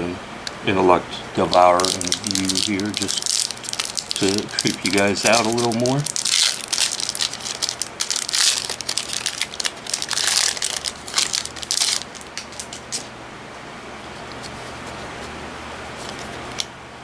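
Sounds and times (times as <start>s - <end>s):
foil wrapper crinkling and tearing: 1.5s - 13.1s.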